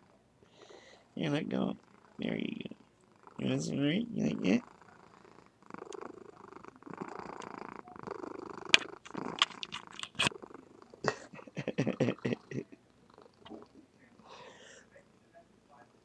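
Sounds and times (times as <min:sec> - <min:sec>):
cat purring: 0:00.0 - 0:16.0
sharp clicks: 0:08.7 - 0:10.3.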